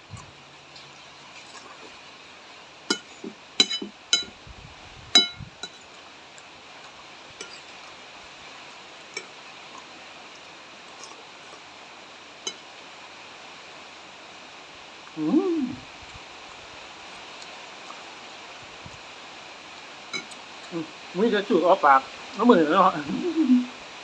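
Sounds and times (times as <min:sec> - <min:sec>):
rain hissing: 0:00.0 - 0:24.0
spoon clinking against bowl: 0:02.9 - 0:04.4, 0:05.2 - 0:05.9, 0:20.2 - 0:20.4.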